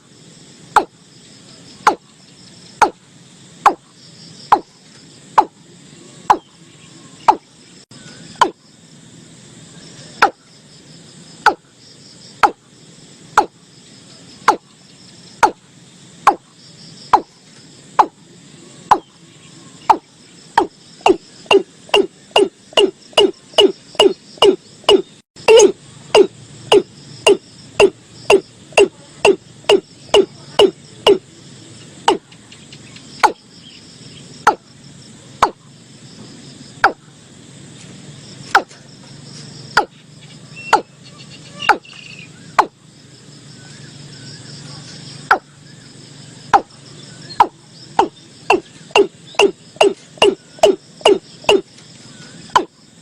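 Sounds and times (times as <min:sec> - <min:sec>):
insects trilling: 0:00.0 - 0:53.0
bird calling deep hollow notes: 0:18.9 - 0:31.2, 0:39.8 - 0:42.8, 0:45.3 - 0:45.9, 0:46.5 - 0:51.7.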